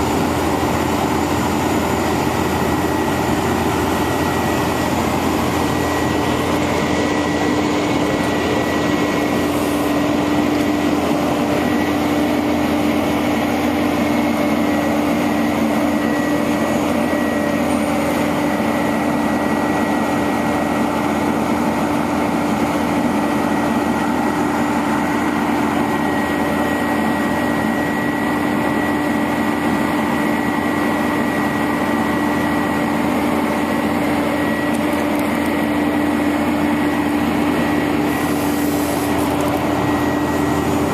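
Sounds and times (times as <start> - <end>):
steady high whine: 0.0 - 40.9
truck engine humming: 0.0 - 40.9.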